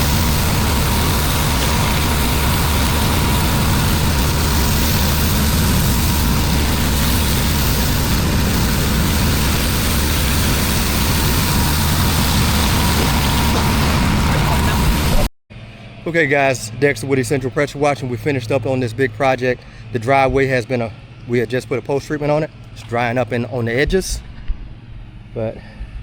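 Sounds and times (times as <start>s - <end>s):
engine running steadily: 0.0s - 26.0s
thin steady whine: 0.0s - 26.0s.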